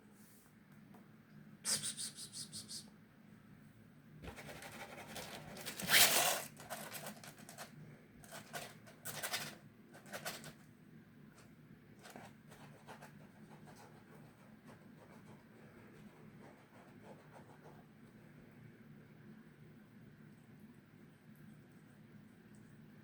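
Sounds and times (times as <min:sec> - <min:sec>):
scratching and rustling: 0:04.2 - 0:10.7.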